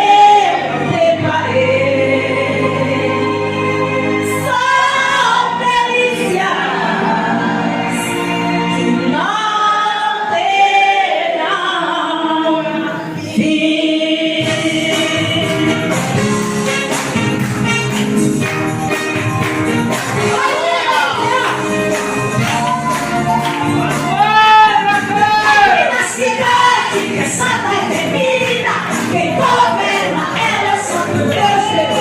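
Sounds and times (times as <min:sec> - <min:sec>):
choir singing a hymn: 0:00.0 - 0:16.3, 0:20.0 - 0:32.0
instrumental accompaniment: 0:14.2 - 0:32.0.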